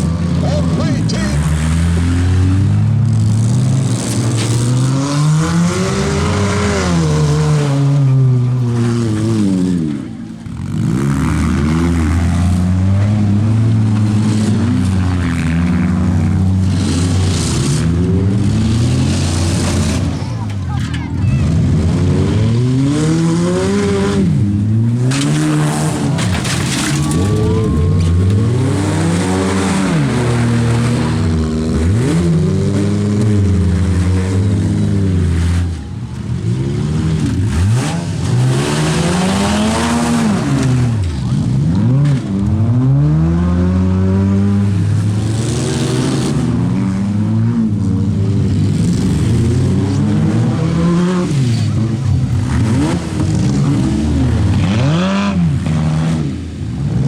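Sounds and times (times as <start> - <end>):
car engines revving: 0.0 - 57.0
tyres squealing: 25.1 - 30.2.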